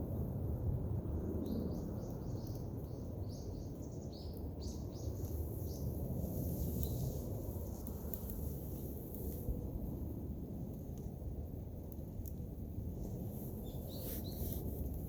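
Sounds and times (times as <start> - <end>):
low outdoor rumble: 0.0 - 15.0
small bird chirping: 13.5 - 14.6.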